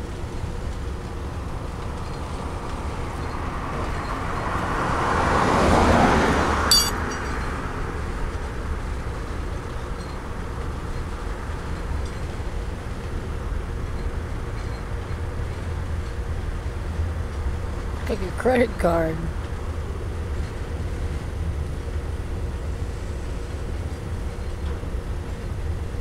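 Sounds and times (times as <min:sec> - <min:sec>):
freight train rumble: 0:00.0 - 0:26.0
sharp metallic clank: 0:06.7 - 0:07.5.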